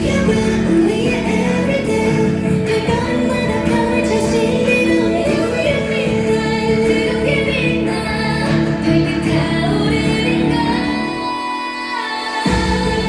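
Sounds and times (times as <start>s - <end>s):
pop song with female singing: 0.0s - 13.0s.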